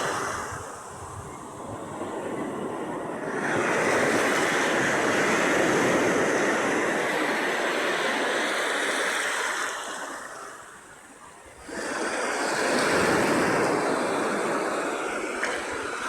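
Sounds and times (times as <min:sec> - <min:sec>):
sea waves breaking: 0:00.0 - 0:16.0.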